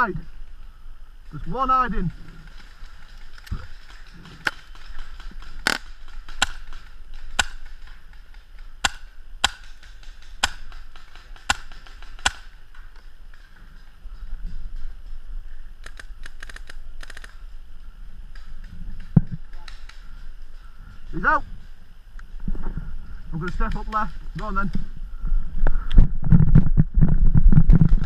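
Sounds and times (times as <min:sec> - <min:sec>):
paintball marker shots: 0:05.6 - 0:07.8, 0:08.8 - 0:12.5.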